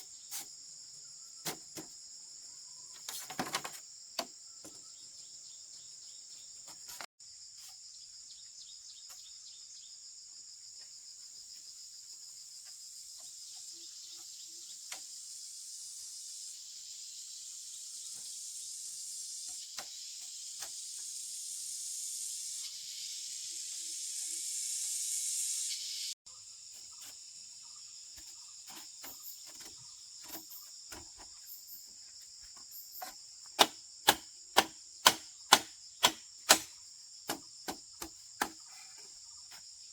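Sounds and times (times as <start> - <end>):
crickets and insects chirring: 0.0 - 39.9
hiss: 14.9 - 26.2.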